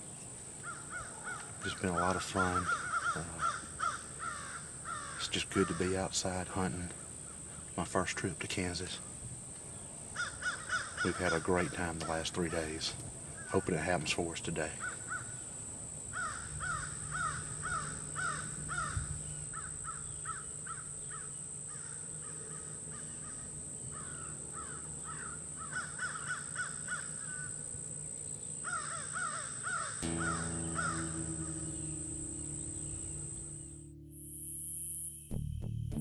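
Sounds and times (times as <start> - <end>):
crows cawing: 0.6 - 6.1, 10.2 - 13.6, 14.8 - 15.4, 16.1 - 27.6, 28.6 - 33.4
background music: 30.0 - 36.0.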